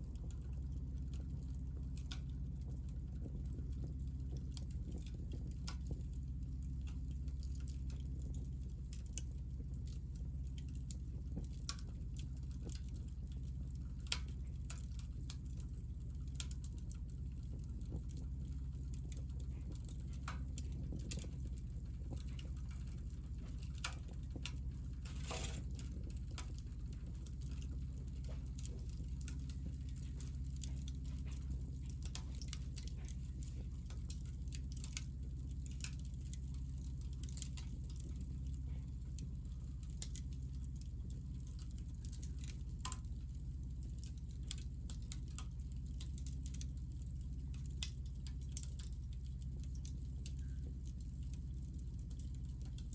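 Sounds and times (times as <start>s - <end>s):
low fire rumble: 0.0s - 52.9s
wood fire crackling: 0.0s - 52.9s
sharp pops and ticks: 0.2s - 52.9s.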